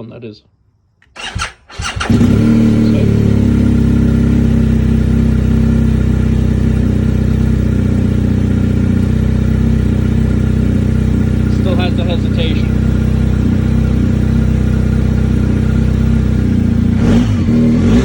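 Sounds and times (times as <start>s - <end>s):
motorcycle engine cranking: 1.0s - 3.8s
motorcycle engine idling: 1.2s - 18.0s.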